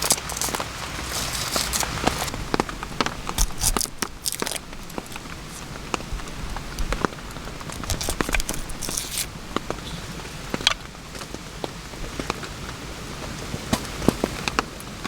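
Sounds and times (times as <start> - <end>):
sharp ticks and crackles: 0.0 - 9.9
rain falling: 0.0 - 15.0.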